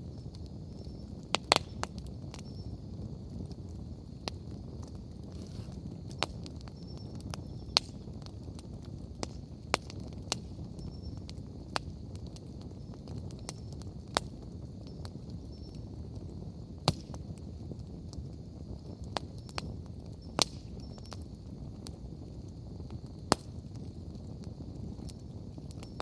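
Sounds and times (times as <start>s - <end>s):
bonfire rumbling: 0.0s - 26.0s
fire crackling and popping: 0.0s - 26.0s.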